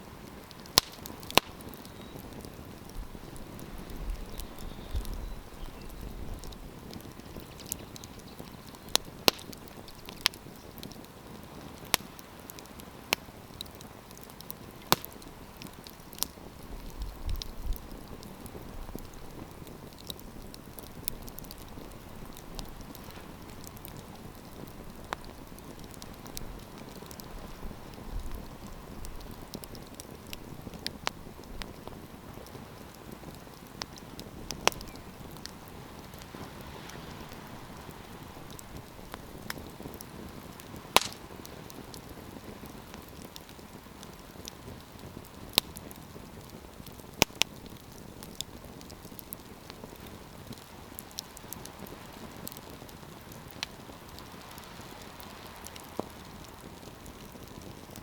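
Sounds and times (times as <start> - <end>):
campfire crackling: 0.0 - 58.0
wood popping and snapping: 0.6 - 2.4, 8.9 - 10.4, 41.0 - 41.3.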